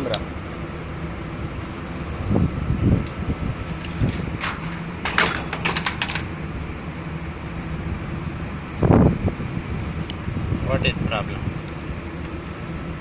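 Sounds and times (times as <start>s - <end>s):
low mechanical hum: 0.0s - 13.0s
metal parts clicking and rattling: 3.6s - 6.3s.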